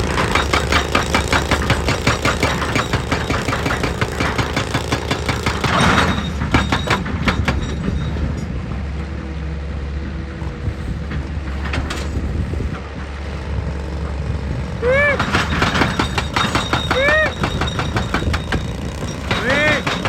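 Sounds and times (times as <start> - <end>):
diesel engine running: 0.0 - 20.0
rapid metallic clanking: 15.2 - 20.0.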